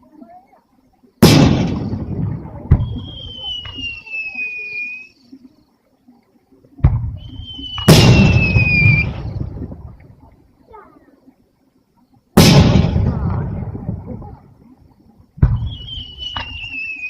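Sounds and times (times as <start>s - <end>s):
fireworks booming: 1.2s - 4.2s, 6.8s - 10.0s, 12.4s - 14.4s, 15.4s - 17.0s
sharp firework crack: 1.2s - 4.4s, 6.8s - 9.4s, 12.4s - 13.8s, 15.4s - 16.8s
thin falling whistle: 2.8s - 5.2s, 7.2s - 9.4s, 15.5s - 17.0s.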